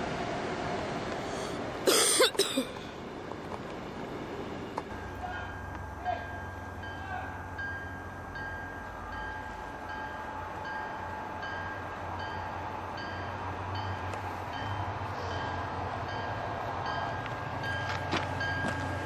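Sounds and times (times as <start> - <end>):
train rumbling: 0.0 - 19.0
locomotive bell ringing: 4.9 - 19.0.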